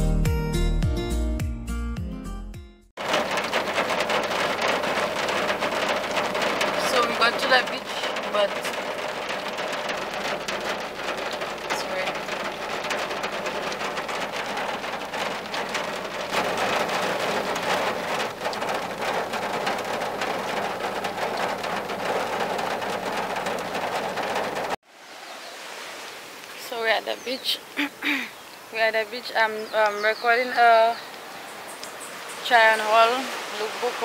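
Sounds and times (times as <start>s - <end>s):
heavy rain on a car roof: 3.0s - 24.8s, 32.4s - 34.0s.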